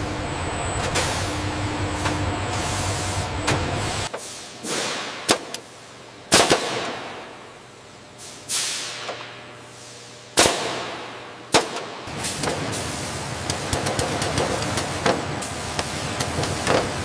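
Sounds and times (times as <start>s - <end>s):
sharp bangs with hiss: 3.5s - 5.6s, 10.3s - 12.8s.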